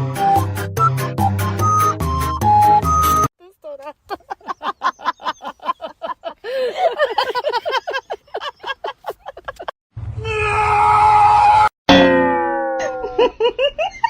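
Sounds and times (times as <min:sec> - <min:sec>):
music: 0:00.0 - 0:03.3.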